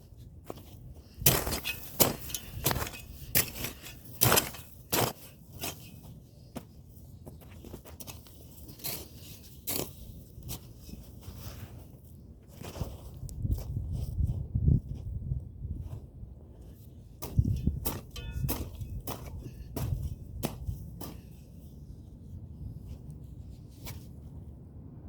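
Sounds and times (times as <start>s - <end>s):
hand tool chopping into ground: 1.2s - 6.0s, 17.2s - 21.4s.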